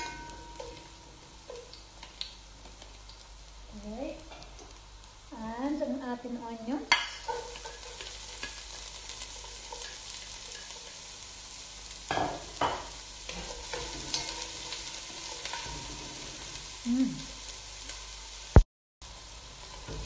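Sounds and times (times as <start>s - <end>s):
spatula clattering in pot: 0.0s - 0.9s, 6.9s - 11.0s, 12.1s - 15.8s
garlic and onion sizzling in oil: 0.0s - 20.0s.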